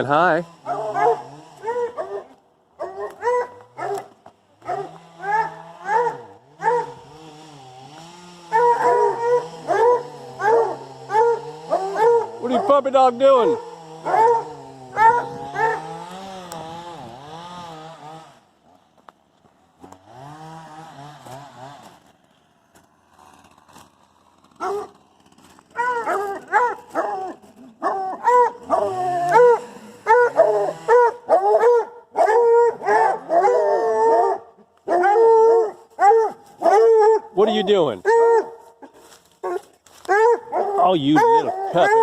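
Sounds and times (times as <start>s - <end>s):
dogs howling: 0.6s - 7.0s, 8.5s - 15.9s, 25.7s - 38.6s, 39.4s - 42.0s
dogs yipping and whining: 0.6s - 7.0s, 8.5s - 16.0s, 24.6s - 25.0s, 25.6s - 42.0s.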